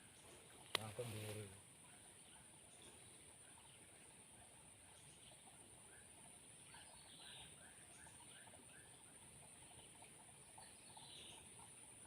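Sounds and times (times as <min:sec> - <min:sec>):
steady high hiss: 0:00.0 - 0:01.8.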